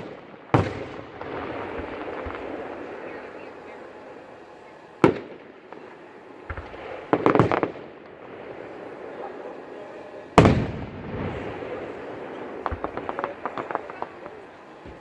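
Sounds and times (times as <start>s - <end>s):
crackling firework pops: 0.0s - 2.8s, 5.0s - 8.2s, 12.6s - 15.0s
fireworks bursting: 0.0s - 15.0s.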